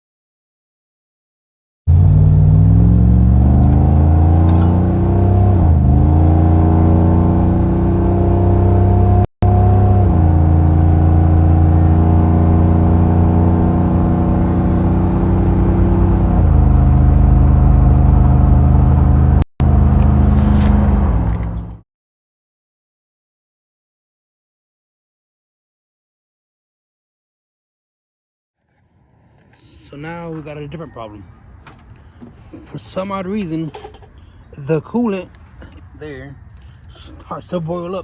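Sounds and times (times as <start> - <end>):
car engine accelerating: 1.9 - 21.8.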